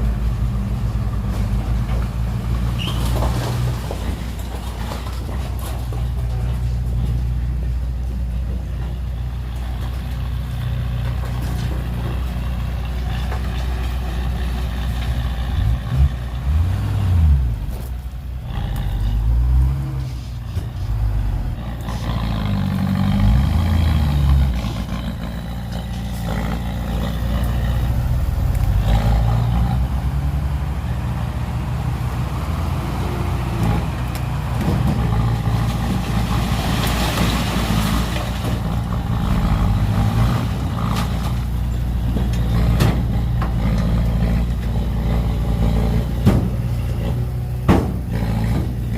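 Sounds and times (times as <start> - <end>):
heavy diesel engines revving: 0.0 - 48.9.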